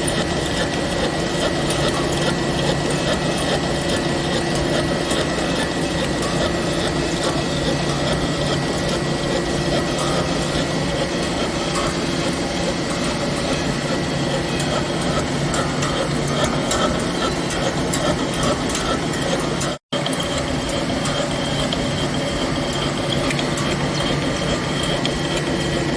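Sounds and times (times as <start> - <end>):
machine tool cutting metal: 0.0 - 25.9.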